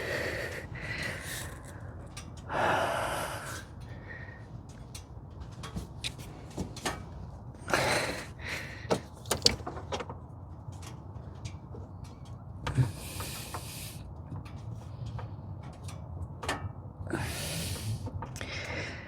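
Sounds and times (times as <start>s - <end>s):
clicks and knocks: 8.9s - 10.2s.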